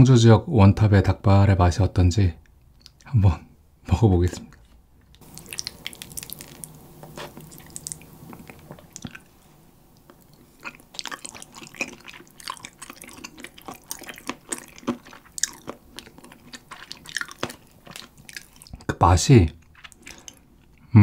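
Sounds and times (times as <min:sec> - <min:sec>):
wet chewing mouth sounds: 0:04.5 - 0:20.8.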